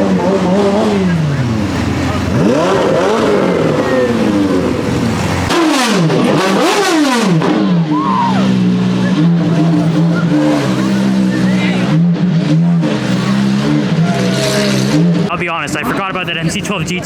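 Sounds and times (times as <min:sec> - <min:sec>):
car engine revving and idling: 0:00.0 - 0:17.0.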